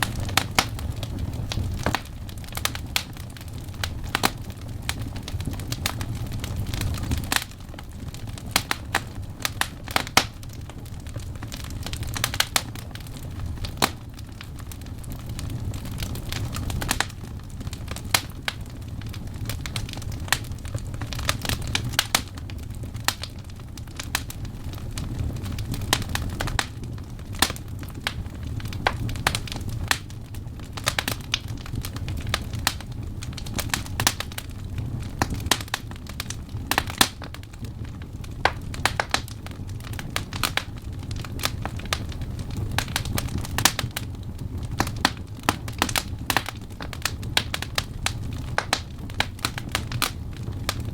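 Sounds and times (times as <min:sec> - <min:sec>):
wood fire crackling and popping: 0:00.0 - 0:50.9.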